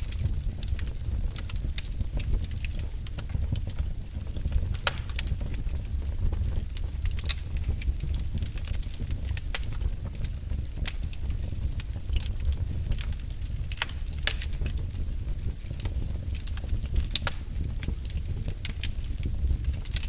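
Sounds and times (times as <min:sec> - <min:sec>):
fire crackles and pops: 0:00.0 - 0:20.0
low rumble of flames: 0:00.0 - 0:20.0.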